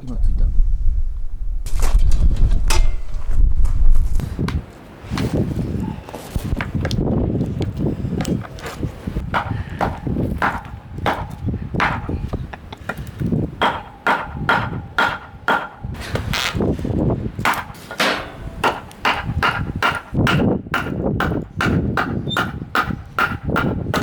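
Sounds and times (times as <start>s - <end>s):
steady low rumble: 0.0s - 4.7s, 18.2s - 22.0s.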